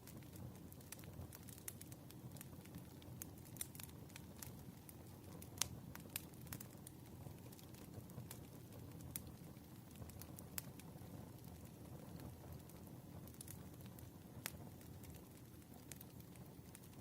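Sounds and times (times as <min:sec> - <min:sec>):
low fire rumble: 0:00.0 - 0:17.0
wood fire crackling and popping: 0:00.0 - 0:17.0.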